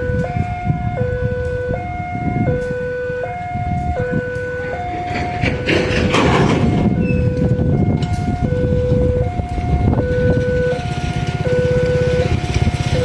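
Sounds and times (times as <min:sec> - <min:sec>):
two-tone level crossing alarm: 0:00.0 - 0:13.0
train rumbling: 0:02.3 - 0:13.0.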